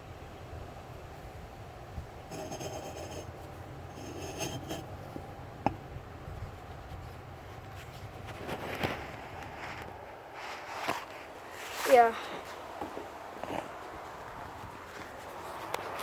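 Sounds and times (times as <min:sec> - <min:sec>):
metal parts scraping: 0:02.3 - 0:04.9.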